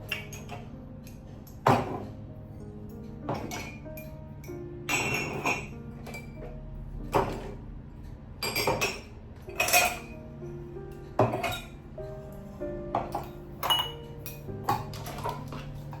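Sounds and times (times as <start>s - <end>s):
dishes and utensils clattering: 0.0s - 7.6s, 8.4s - 10.3s, 10.9s - 16.0s
soft background music: 0.0s - 16.0s.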